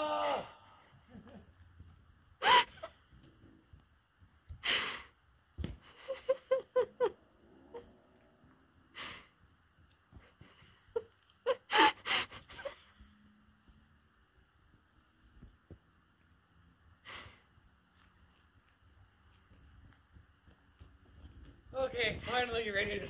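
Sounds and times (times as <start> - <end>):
person wheezing and gasping: 2.4 - 2.9.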